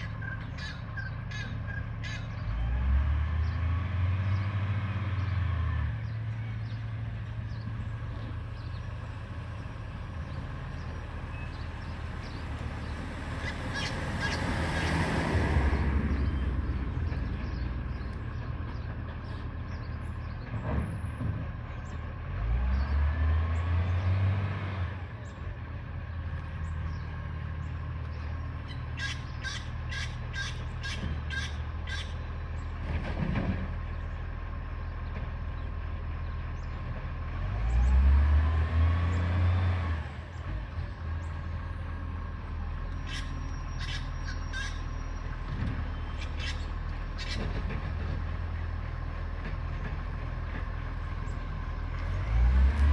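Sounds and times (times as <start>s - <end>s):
diesel truck engine running: 0.0s - 52.9s
engine revving: 2.3s - 28.4s, 36.2s - 52.9s.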